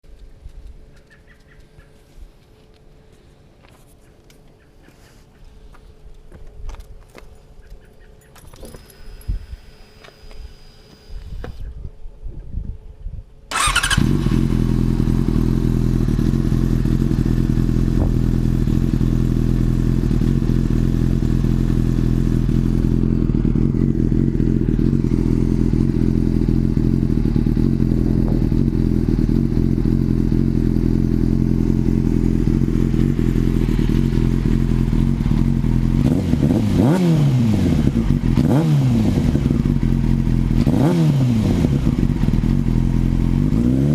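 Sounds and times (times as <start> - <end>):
motorcycle engine idling: 13.5 - 43.8
motorcycle engine revving: 13.5 - 43.9.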